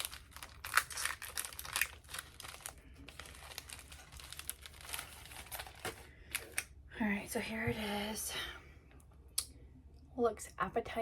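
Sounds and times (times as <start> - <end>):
plastic snack wrapper crinkling: 0.0 - 6.7.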